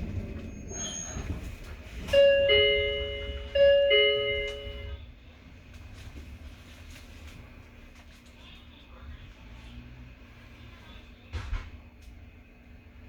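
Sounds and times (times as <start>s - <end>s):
train car rumble: 0.0s - 13.0s
two-note door chime: 2.2s - 5.0s.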